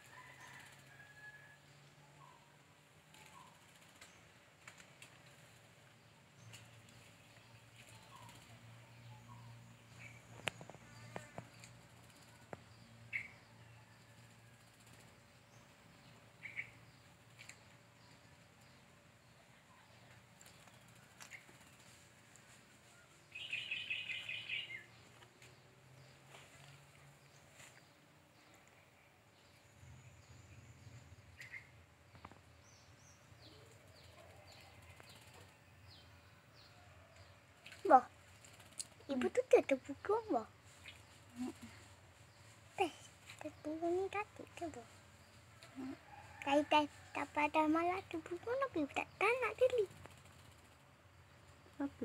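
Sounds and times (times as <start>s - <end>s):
faint bird chirps: 6.4s - 18.7s, 22.9s - 25.2s, 26.0s - 52.0s
high falling bird chirps: 23.3s - 24.9s.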